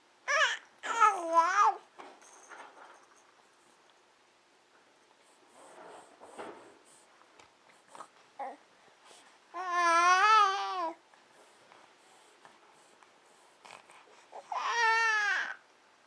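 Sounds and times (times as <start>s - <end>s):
baby babbling: 0.3s - 1.8s, 9.6s - 11.0s.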